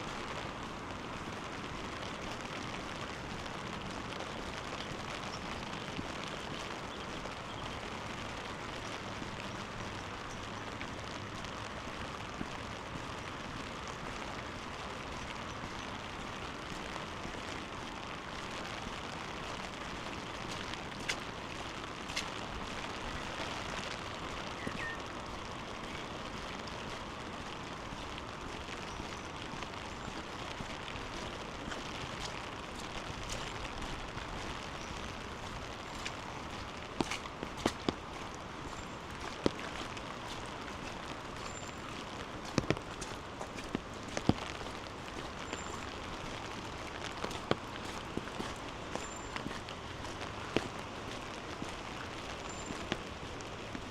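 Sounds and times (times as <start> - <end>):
water rushing: 0.0 - 53.9.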